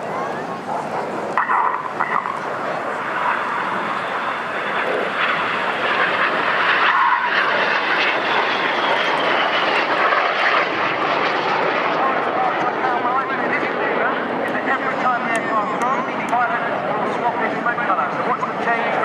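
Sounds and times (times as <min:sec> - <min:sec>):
jet engines rushing: 0:00.0 - 0:19.0
high whine falling in pitch: 0:01.3 - 0:10.2.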